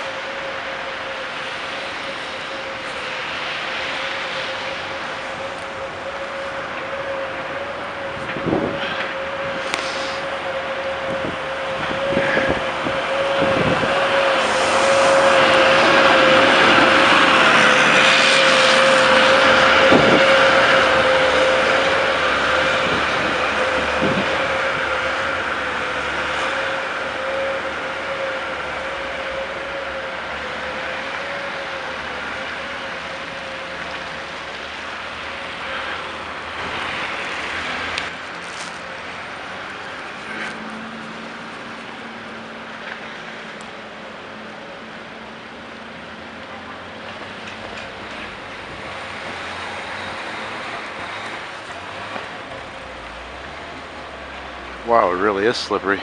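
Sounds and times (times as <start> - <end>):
vehicle whine: 0.0 - 56.0.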